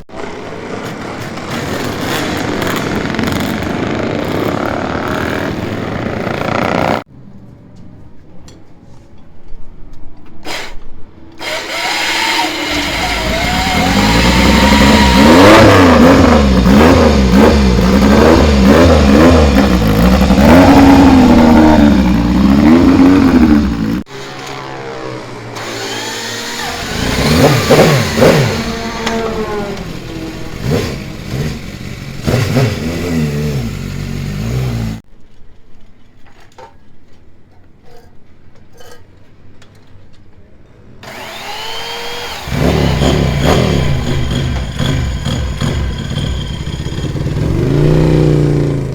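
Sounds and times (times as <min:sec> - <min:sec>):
motorcycle engines revving: 0:00.0 - 0:07.1, 0:11.8 - 0:35.0, 0:41.1 - 0:48.9.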